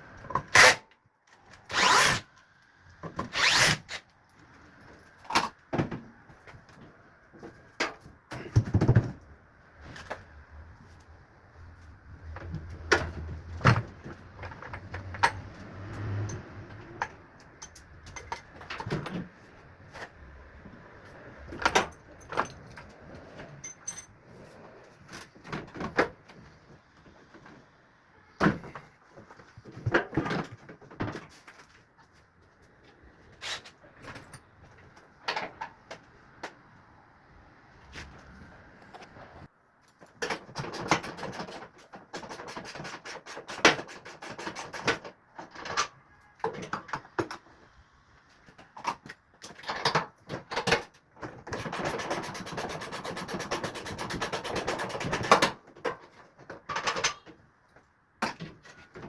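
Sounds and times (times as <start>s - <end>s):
metallic clinks of tools and parts: 14.4s - 19.2s, 21.6s - 24.2s.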